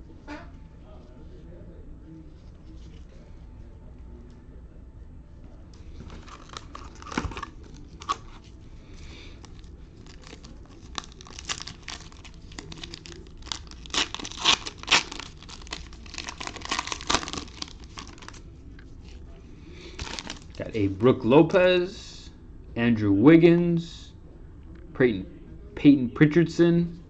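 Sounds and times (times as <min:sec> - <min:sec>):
wrapper tearing and crinkling: 0:06.0 - 0:08.6, 0:09.4 - 0:18.4, 0:19.9 - 0:20.6.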